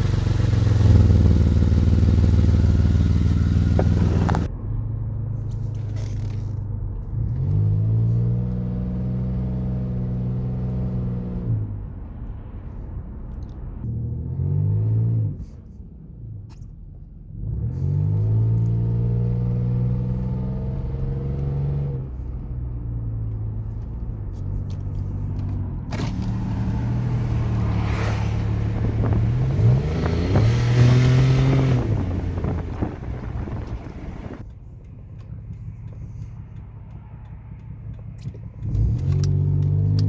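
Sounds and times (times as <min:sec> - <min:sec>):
car engine accelerating: 0:00.0 - 0:04.5, 0:17.4 - 0:34.5, 0:35.1 - 0:40.0
wind on microphone: 0:27.4 - 0:34.4.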